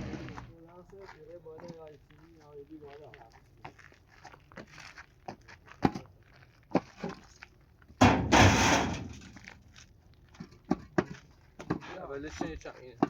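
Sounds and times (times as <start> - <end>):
loud rushing scraping noise: 8.1 - 9.4.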